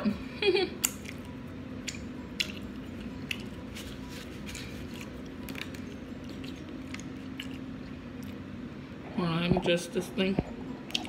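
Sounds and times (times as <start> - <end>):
faint steady hum: 0.0 - 11.0
chewing and lip smacks: 0.8 - 8.4.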